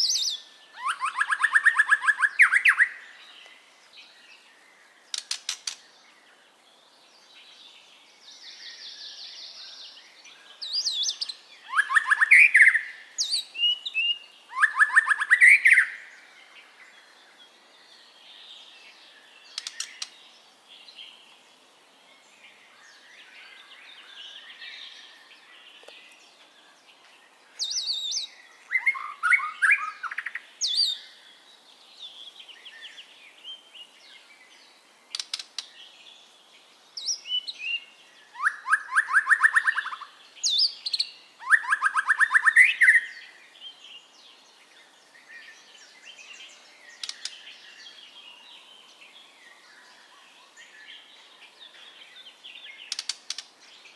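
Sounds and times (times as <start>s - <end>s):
bird singing rich phrases: 0.0s - 53.9s
bird chattering and clicking: 5.1s - 5.8s, 19.6s - 20.2s, 35.1s - 35.7s, 47.0s - 47.4s, 52.9s - 53.5s.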